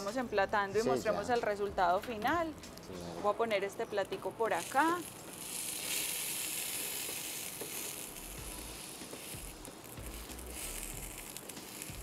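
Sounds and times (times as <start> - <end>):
chicken sizzling in oil: 4.0 - 12.0.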